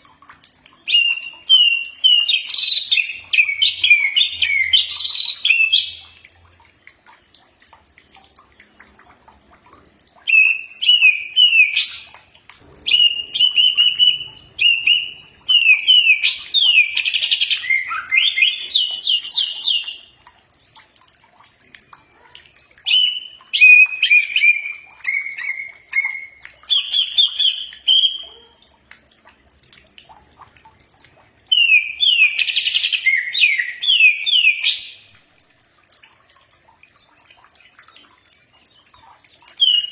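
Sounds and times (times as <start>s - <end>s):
bird singing whistled phrases: 0.8s - 6.0s, 10.3s - 12.2s, 12.8s - 20.1s, 22.8s - 28.4s, 31.5s - 35.2s, 39.6s - 39.9s.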